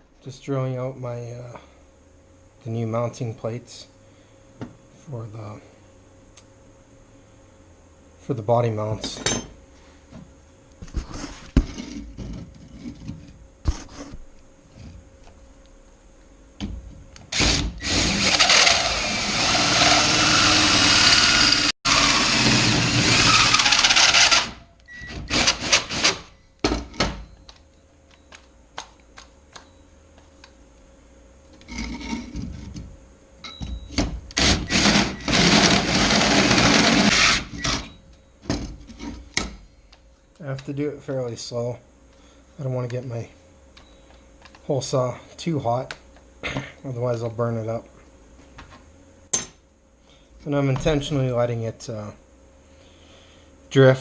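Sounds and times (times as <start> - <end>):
electric drill cutting hole saw: 17.3 - 26.3, 34.4 - 37.9.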